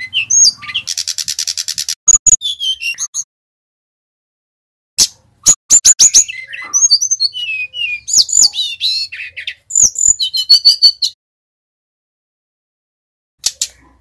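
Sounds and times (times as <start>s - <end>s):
bird singing whistles and chips: 0.0s - 3.3s, 5.1s - 11.2s.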